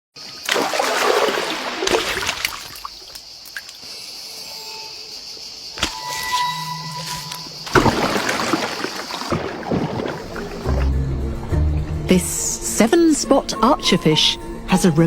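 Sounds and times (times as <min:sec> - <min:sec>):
water splashing and trickling: 0:00.2 - 0:04.0, 0:07.0 - 0:11.5.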